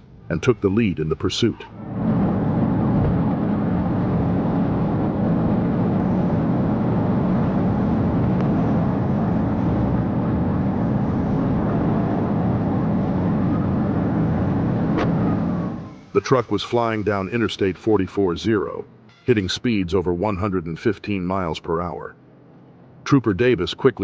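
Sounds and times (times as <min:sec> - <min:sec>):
wind noise: 0:01.7 - 0:17.8
car engine driving fast: 0:01.8 - 0:16.6.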